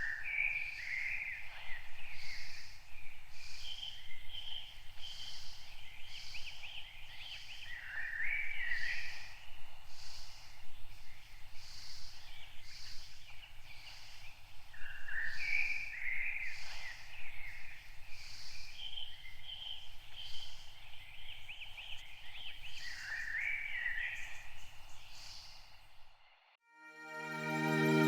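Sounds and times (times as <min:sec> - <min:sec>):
songbirds chirping and warbling: 0:00.0 - 0:26.4
soft high pulsing sound: 0:26.7 - 0:28.0.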